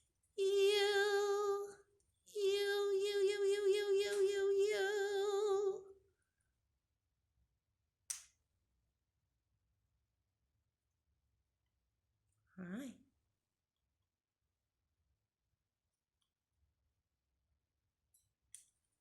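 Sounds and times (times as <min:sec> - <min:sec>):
woman singing: 0:00.4 - 0:06.0.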